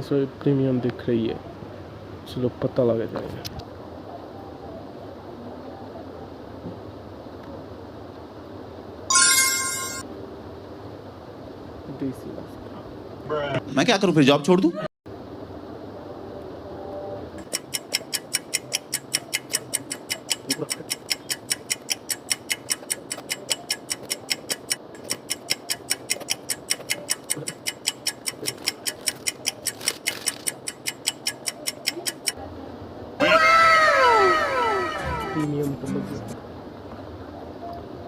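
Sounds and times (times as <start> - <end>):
clock-like ticking: 17.4 - 32.4
loud sound with falling pitches: 33.2 - 36.4.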